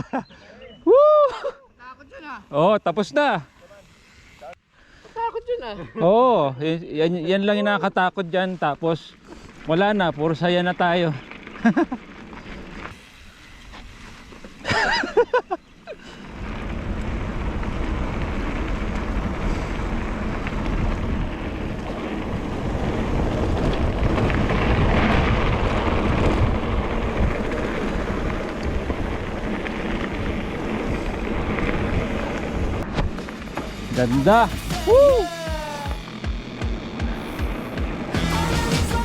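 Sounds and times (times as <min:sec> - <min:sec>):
bike tyres rumbling on dirt: 0:08.6 - 0:39.0
wind buffeting microphone: 0:16.2 - 0:33.2
person shouting: 0:34.2 - 0:36.2.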